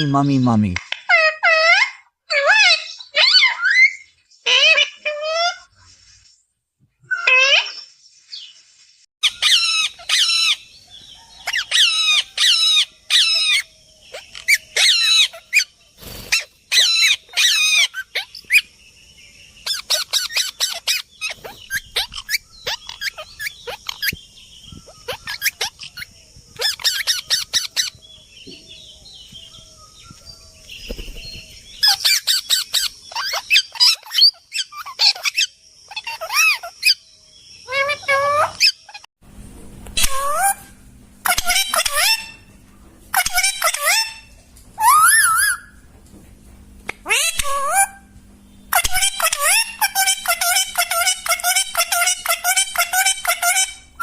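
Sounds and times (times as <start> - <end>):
parrot chick squawking: 1.0 - 5.7, 9.2 - 10.7, 11.4 - 18.6, 19.6 - 24.2, 24.8 - 27.9, 31.8 - 37.0, 37.6 - 39.1, 40.0 - 42.5, 43.1 - 45.8, 47.0 - 48.1, 48.7 - 54.0.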